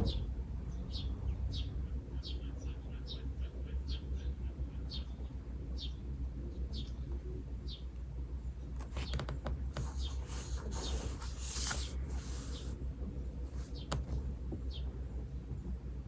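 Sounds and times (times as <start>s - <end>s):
steady low hum: 0.0s - 16.0s
pen tapping: 8.8s - 12.7s, 13.5s - 14.2s
pen writing on paper: 8.8s - 12.8s, 13.5s - 14.2s.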